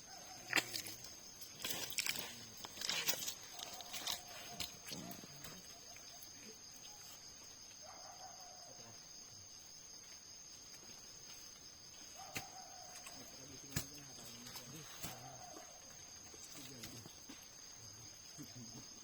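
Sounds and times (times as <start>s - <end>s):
faint animal calls: 14.6s - 16.8s.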